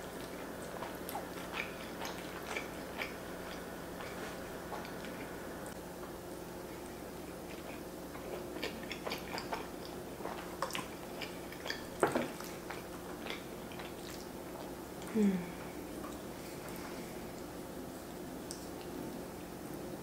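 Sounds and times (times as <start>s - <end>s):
wet chewing clicks and smacks: 0.0s - 5.3s, 6.8s - 15.1s, 16.0s - 19.5s
woman humming mm: 15.0s - 15.8s.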